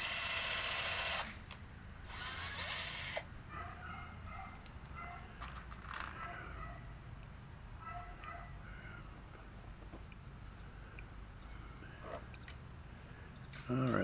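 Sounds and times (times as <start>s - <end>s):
power drill boring into wood: 0.0s - 1.4s, 2.1s - 3.3s.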